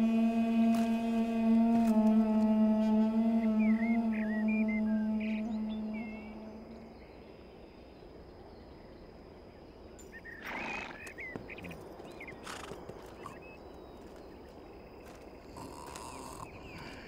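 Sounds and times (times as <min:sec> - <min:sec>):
low musical drone: 0:00.0 - 0:08.0
birds chirping: 0:00.0 - 0:17.0.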